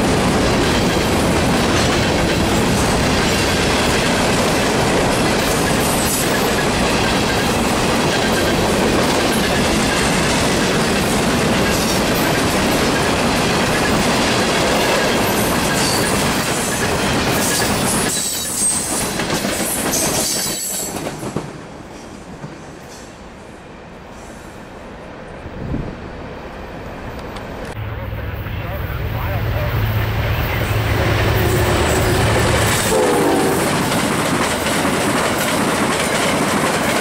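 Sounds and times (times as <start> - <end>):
freight train rolling past: 0.0 - 37.0
wheels clicking over rail joints: 33.7 - 37.0.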